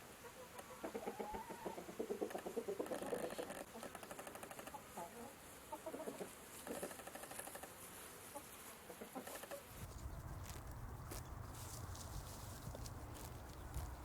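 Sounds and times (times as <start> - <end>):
chickens clucking: 0.2 - 7.7, 8.3 - 14.0
low steady rumble: 9.8 - 14.0.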